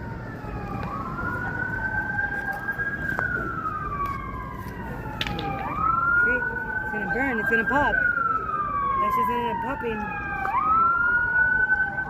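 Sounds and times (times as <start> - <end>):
low vehicle rumble: 0.0 - 9.0
emergency siren wailing: 0.0 - 12.0
fainter second siren wail: 0.0 - 12.0.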